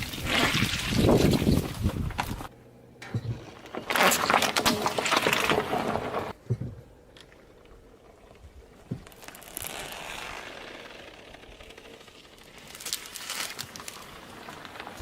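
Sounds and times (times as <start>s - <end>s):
things crushed under car tyre: 0.0s - 2.5s, 3.2s - 6.4s.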